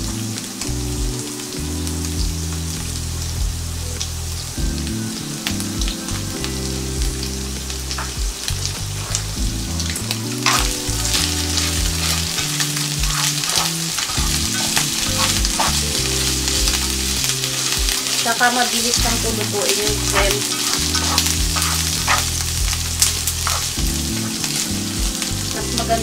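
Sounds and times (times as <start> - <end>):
shrimp sizzling in a skillet: 0.0 - 26.0
spatula stirring in skillet: 10.0 - 25.2.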